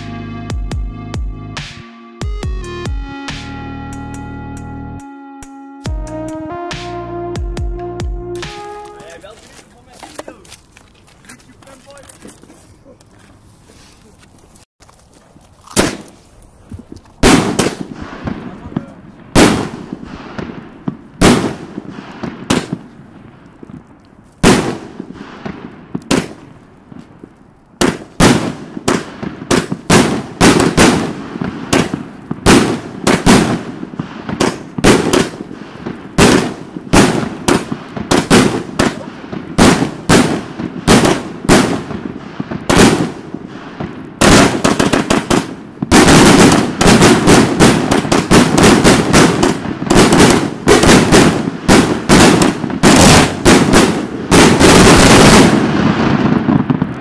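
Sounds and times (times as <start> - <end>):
fireworks firing sharp reports: 8.4 - 10.6, 11.3 - 12.5, 15.7 - 16.2, 17.2 - 57.0.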